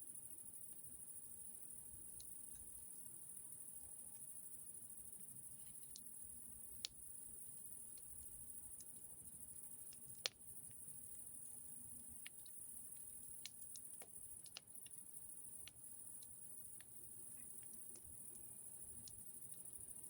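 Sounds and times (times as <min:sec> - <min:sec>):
campfire crackling and popping: 0:05.2 - 0:20.0.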